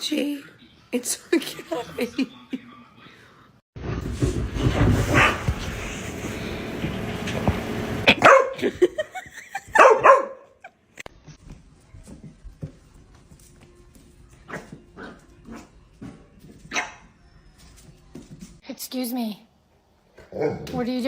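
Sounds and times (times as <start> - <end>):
dog barking: 5.1 - 5.5, 8.1 - 8.6, 9.7 - 10.6, 16.7 - 17.0, 20.2 - 20.8.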